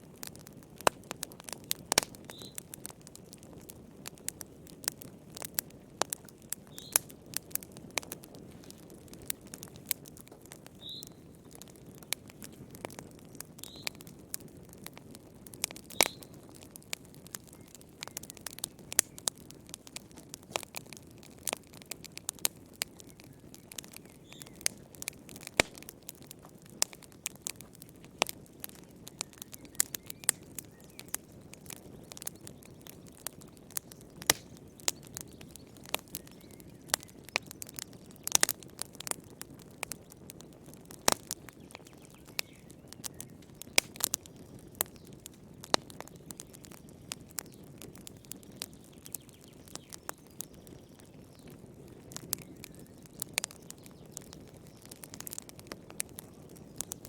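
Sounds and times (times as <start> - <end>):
fire pops and snaps: 0.0 - 57.0
low rumble of burning: 0.0 - 57.0.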